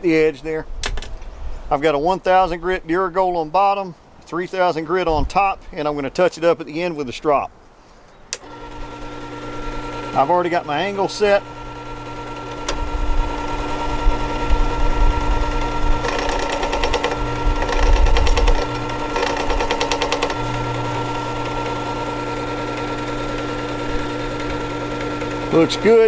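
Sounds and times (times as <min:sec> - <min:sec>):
chisel grinding on abrasive disc: 0:08.4 - 0:26.0
sharpener motor hum: 0:08.4 - 0:26.0.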